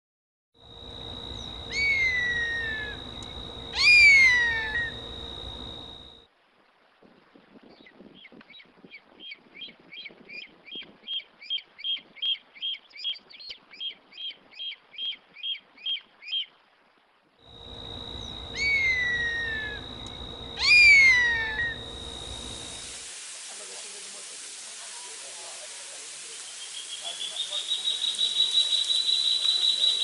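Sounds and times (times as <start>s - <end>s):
bird calling rapid notes: 1.7s - 5.1s, 18.2s - 23.0s, 26.5s - 30.0s
bird screaming: 1.7s - 5.2s, 18.2s - 22.9s.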